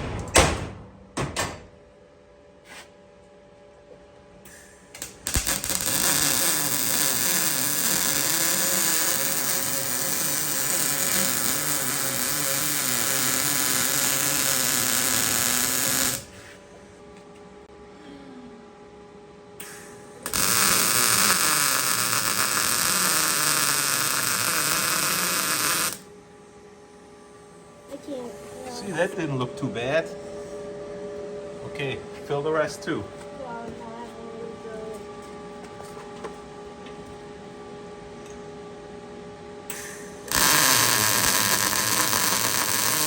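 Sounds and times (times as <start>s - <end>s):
steady hum: 0.0s - 43.0s
welding arc crackling: 5.0s - 16.3s, 20.2s - 26.1s, 39.8s - 43.0s.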